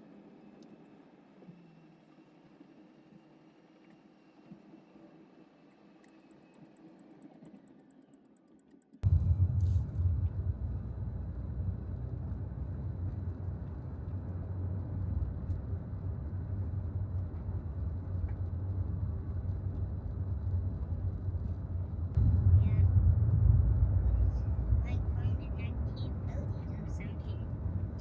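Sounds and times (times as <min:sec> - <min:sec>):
car road rumble from inside: 0:09.0 - 0:28.0.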